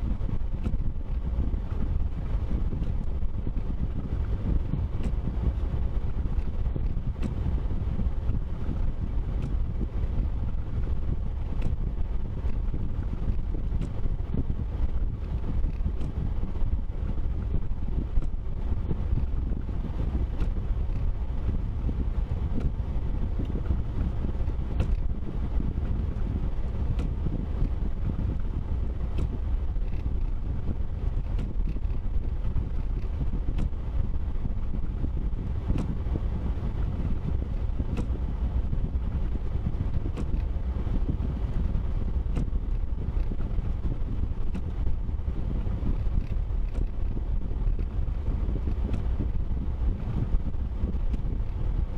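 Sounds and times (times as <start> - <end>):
wind buffeting microphone: 0.0 - 51.9
car driving rumble: 0.2 - 51.9
faint clicks: 46.0 - 47.0.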